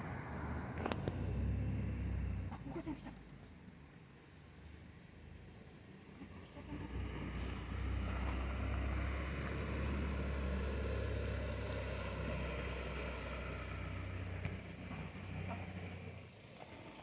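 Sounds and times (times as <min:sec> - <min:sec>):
deep engine rumble: 0:00.0 - 0:02.8, 0:06.6 - 0:16.3.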